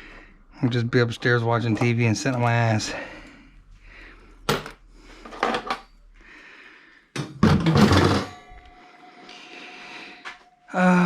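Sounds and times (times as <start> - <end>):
tools knocking and clattering: 4.5 - 5.9, 7.2 - 8.8.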